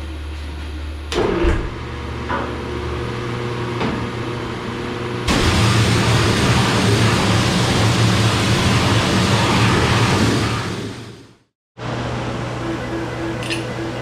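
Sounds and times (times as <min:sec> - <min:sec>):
machine rumbling: 0:05.2 - 0:14.0
low hum: 0:05.3 - 0:14.0.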